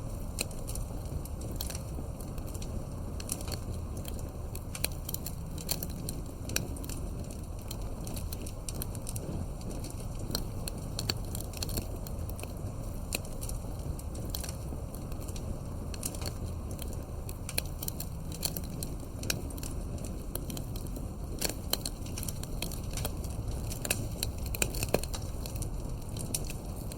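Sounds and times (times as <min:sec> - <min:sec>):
wood fire crackling: 0:00.0 - 0:26.9.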